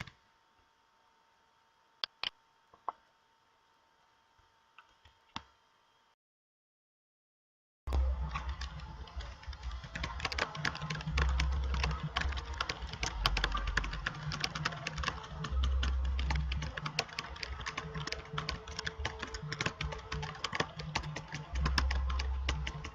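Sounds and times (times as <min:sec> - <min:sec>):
rapid irregular clicking: 0:07.9 - 0:22.9.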